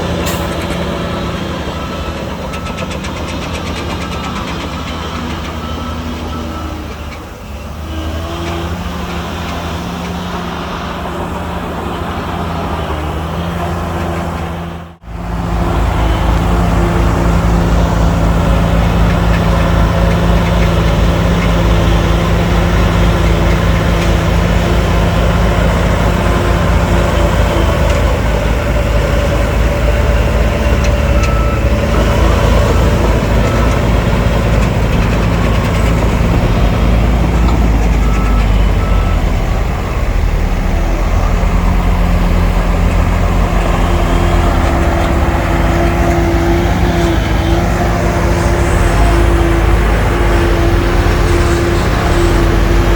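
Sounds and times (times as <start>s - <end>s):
heavy diesel machinery rumbling: 0.0s - 52.9s
faint reversing alarm beeps: 37.2s - 41.8s.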